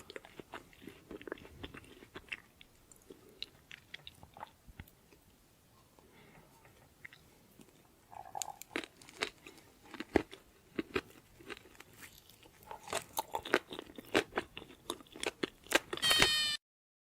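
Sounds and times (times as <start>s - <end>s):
crunching fried chicken: 0.0s - 4.6s, 8.3s - 16.6s.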